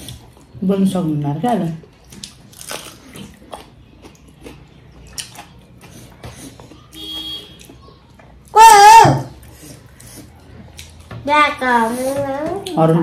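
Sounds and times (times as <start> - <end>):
chewing clicks and mouth smacks: 2.0 - 8.2, 9.5 - 11.1.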